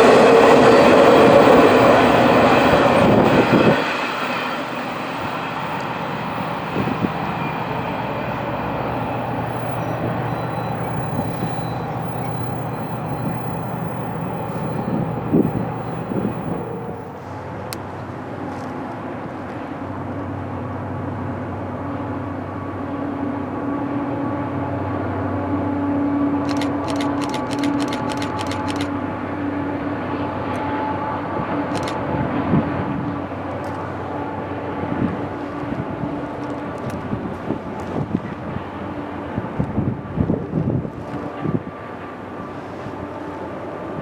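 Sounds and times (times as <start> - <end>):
freight train rumbling past: 0.0 - 44.0.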